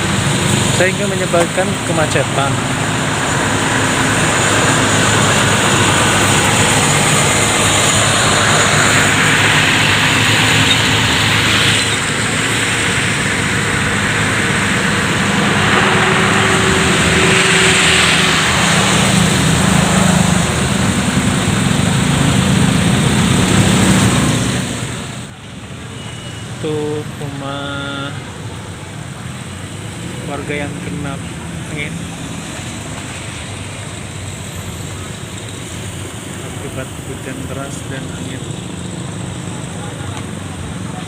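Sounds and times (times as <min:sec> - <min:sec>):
loud traffic rush: 0:00.0 - 0:41.0
vehicle engines running: 0:00.0 - 0:41.0.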